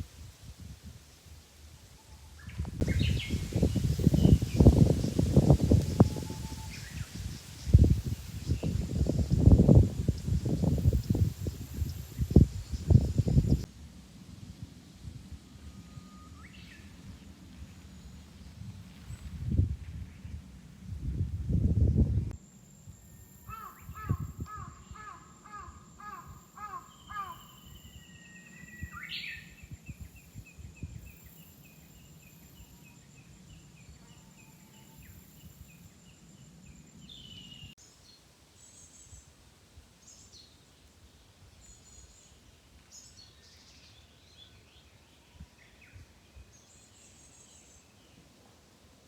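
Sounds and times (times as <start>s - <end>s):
birds calling: 23.5s - 27.8s.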